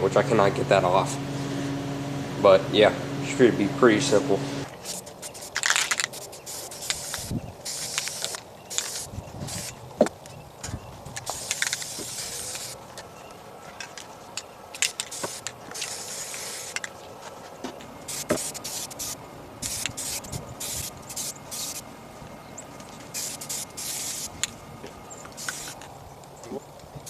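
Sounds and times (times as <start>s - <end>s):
spray paint can spraying: 4.7s - 9.8s, 11.2s - 12.8s, 14.8s - 16.9s, 18.1s - 21.8s, 23.1s - 24.5s, 25.3s - 25.9s
spray can clicks: 25.4s - 25.8s.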